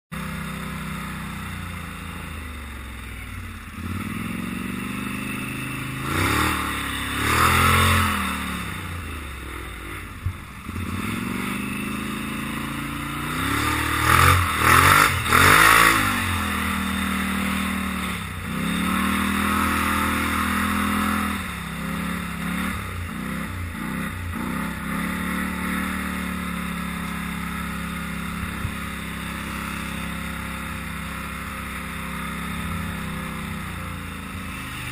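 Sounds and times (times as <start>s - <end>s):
quad bike engine revving: 0.1s - 34.9s.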